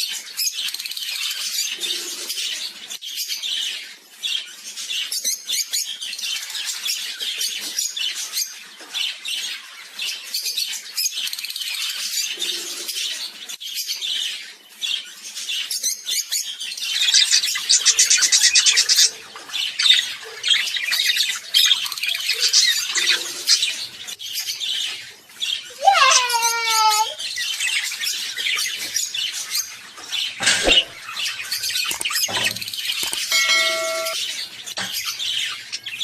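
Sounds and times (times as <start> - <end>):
birds chattering and squawking: 0.0 - 36.0
rapid buzzy bird calls: 16.9 - 36.0.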